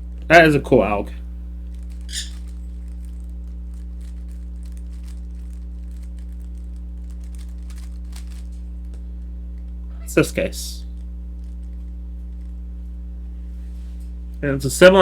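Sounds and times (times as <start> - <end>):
low electrical hum: 0.0 - 15.0
plastic puzzle cube clicks and rattles: 2.3 - 8.6.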